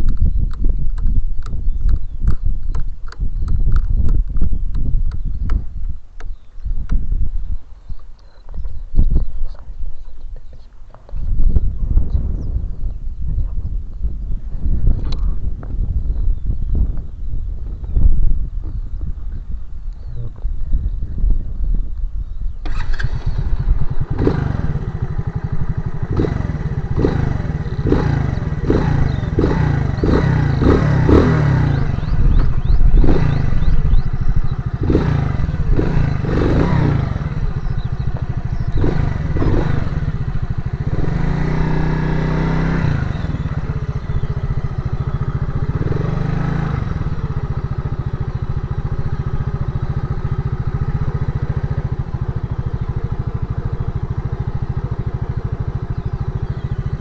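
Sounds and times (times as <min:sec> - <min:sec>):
motorcycle engine revving: 0:22.6 - 0:57.0.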